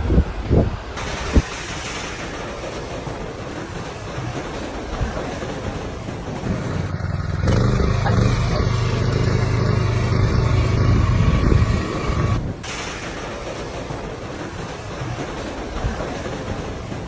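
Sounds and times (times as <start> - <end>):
motor vehicle running: 6.4 - 12.6.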